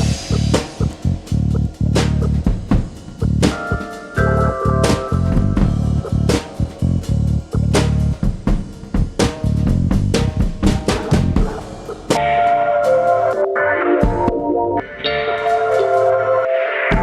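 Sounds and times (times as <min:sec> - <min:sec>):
fast drum beat: 0:00.0 - 0:12.4
bass: 0:00.0 - 0:17.0
guitar: 0:12.2 - 0:17.0.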